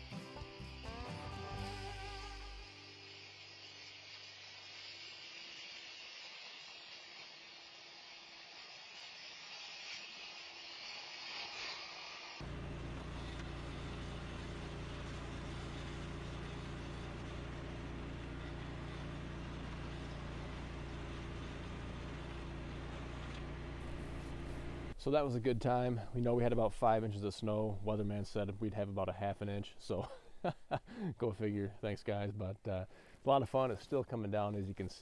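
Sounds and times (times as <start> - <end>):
garden tractor engine running: 0.0 - 9.6, 12.4 - 26.6
steady hiss: 0.0 - 12.5.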